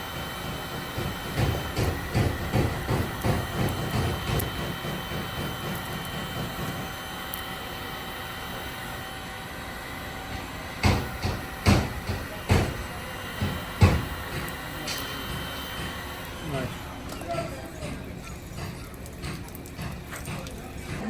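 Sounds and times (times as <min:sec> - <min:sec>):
steady hum: 0:00.0 - 0:21.0
loud sharp hammer blows: 0:10.3 - 0:21.0
hammer knocking car panel: 0:10.8 - 0:14.3.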